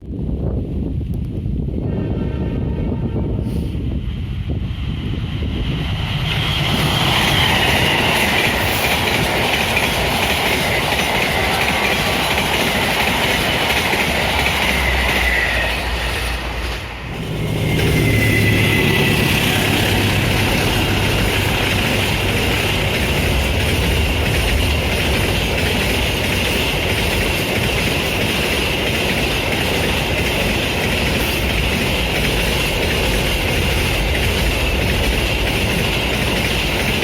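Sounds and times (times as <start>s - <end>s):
train running on rails: 0.0s - 37.0s
high wavering wheel whine: 5.8s - 25.8s.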